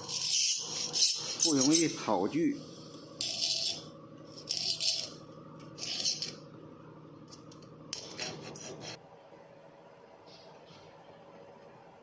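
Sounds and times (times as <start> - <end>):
steel tool scraping saw teeth: 0.0 - 1.9.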